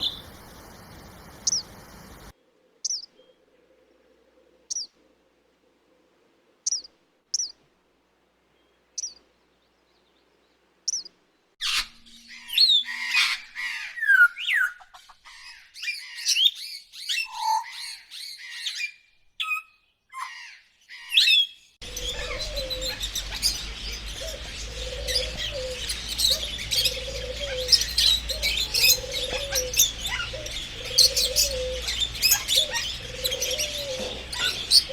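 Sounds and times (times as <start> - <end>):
short high bird chirps: 0.0 - 2.3
steady background noise: 0.0 - 2.3
low repeating bird call: 0.0 - 3.4, 21.8 - 34.9
sweeping birdsong: 0.0 - 7.6, 8.4 - 34.9.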